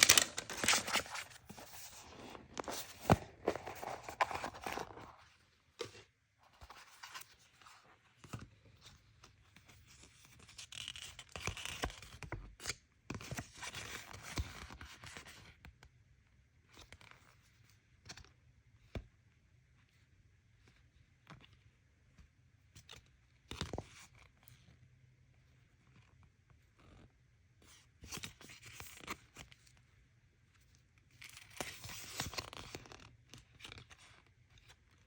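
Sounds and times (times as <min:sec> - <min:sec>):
packaging tearing and scraping: 0:00.0 - 0:05.2.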